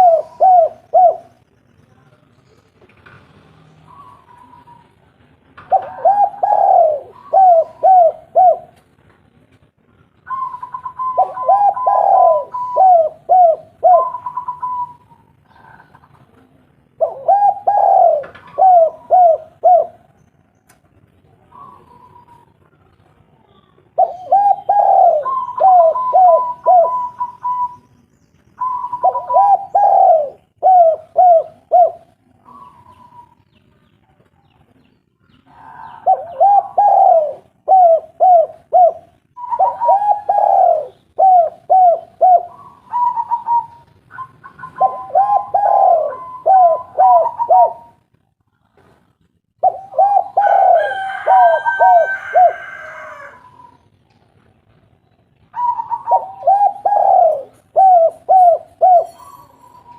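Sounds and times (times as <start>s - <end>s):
higher-pitched dove coo: 0.0s - 1.4s, 3.9s - 5.0s, 5.7s - 8.8s, 10.3s - 16.1s, 17.0s - 20.1s, 21.4s - 22.6s, 23.5s - 27.9s, 28.6s - 33.4s, 35.4s - 48.0s, 49.6s - 53.9s, 55.6s - 59.9s
doves cooing: 0.0s - 1.5s, 5.6s - 8.8s, 10.3s - 20.2s, 21.4s - 27.9s, 28.6s - 33.5s, 35.4s - 48.0s, 49.6s - 54.0s, 55.5s - 59.9s.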